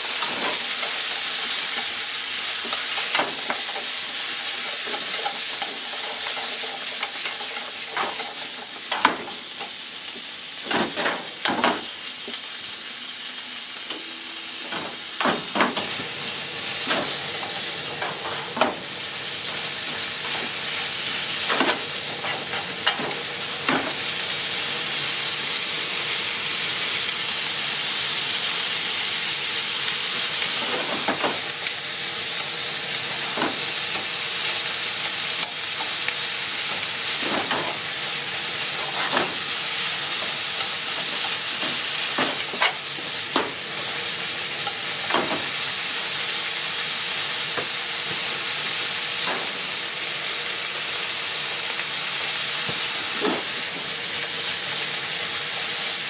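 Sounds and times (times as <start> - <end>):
onions and ham sizzling in a pan: 0.0 - 56.0.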